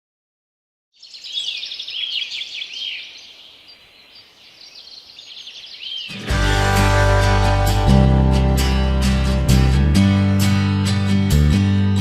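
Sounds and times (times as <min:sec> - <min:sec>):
small birds chirping: 0:00.9 - 0:06.5.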